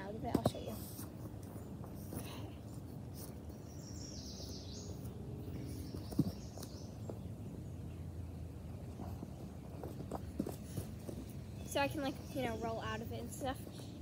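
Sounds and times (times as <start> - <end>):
low outdoor background: 0.0 - 14.0
birds chirping and singing: 1.5 - 8.2.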